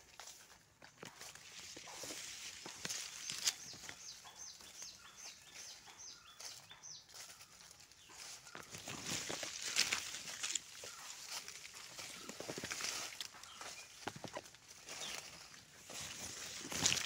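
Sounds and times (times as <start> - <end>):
footsteps crunching through dry leaves: 0.0 - 17.0.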